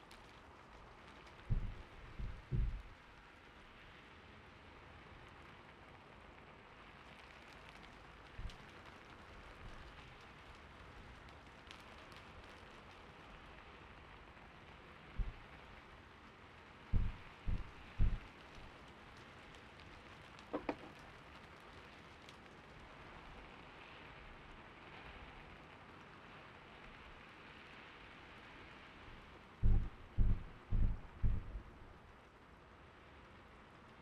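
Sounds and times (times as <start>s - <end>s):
gentle rain: 0.0s - 34.0s
soft low thumps: 1.5s - 3.0s, 8.4s - 8.6s, 15.2s - 15.4s, 16.9s - 18.3s, 29.6s - 32.0s.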